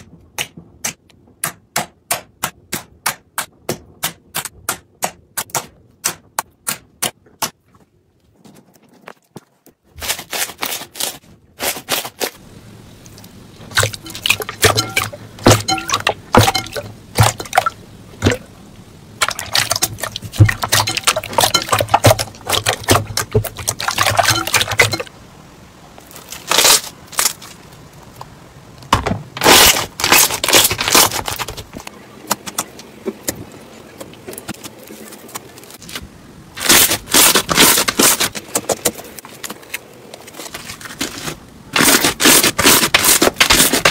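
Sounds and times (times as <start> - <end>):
low steady hum: 11.2 - 43.9.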